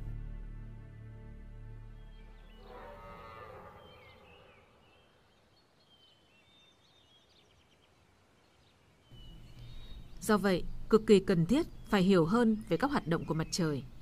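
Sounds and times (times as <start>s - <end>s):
faint bird chirps and trills: 2.0s - 14.0s
wavering animal call: 2.5s - 4.9s.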